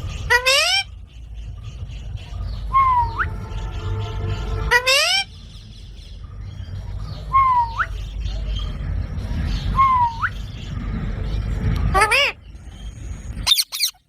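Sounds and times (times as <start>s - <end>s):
low rumble: 0.0s - 14.0s
parrot whistled calls: 2.7s - 3.4s, 7.3s - 8.0s, 13.4s - 14.0s.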